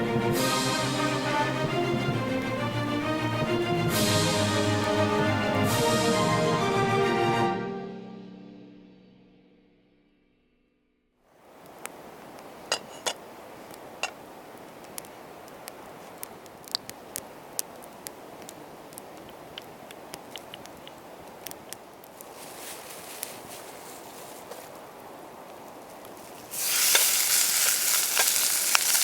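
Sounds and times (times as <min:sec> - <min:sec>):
bright sizzle: 0:00.0 - 0:05.7, 0:26.2 - 0:29.0
campfire crackling and popping: 0:00.0 - 0:05.7, 0:11.4 - 0:23.6, 0:24.7 - 0:29.0.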